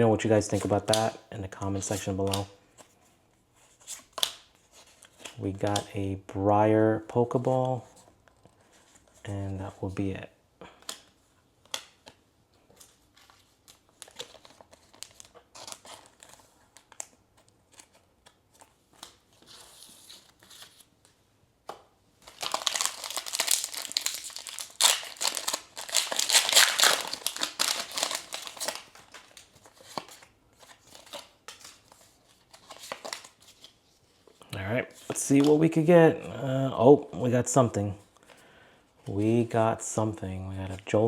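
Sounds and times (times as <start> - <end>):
foil wrapper crinkling and tearing: 22.2 - 31.3.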